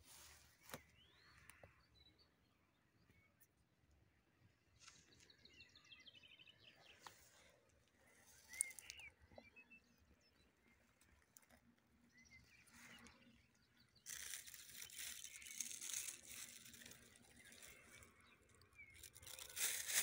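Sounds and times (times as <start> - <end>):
faint bird chirps: 0.0 - 3.7, 4.4 - 20.0
crinkling rustle: 7.0 - 9.1, 10.9 - 20.0.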